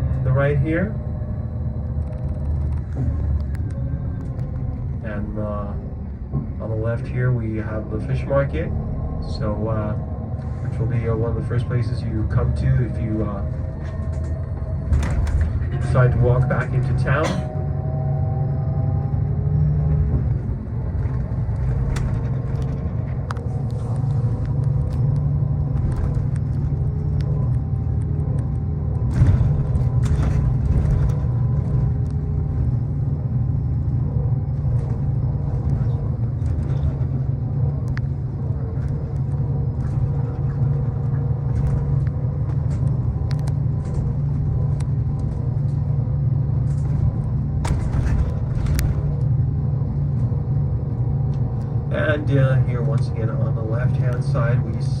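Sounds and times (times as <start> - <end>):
bus engine rumble from inside: 0.0 - 55.0
rattles and clicks: 1.8 - 5.0, 12.3 - 17.7, 20.1 - 51.9.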